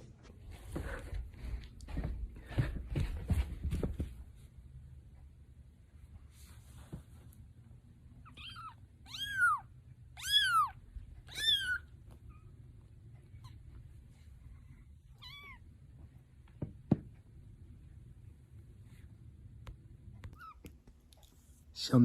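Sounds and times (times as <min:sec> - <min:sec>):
cat meowing: 0:08.2 - 0:12.6, 0:15.1 - 0:15.7, 0:20.3 - 0:21.3.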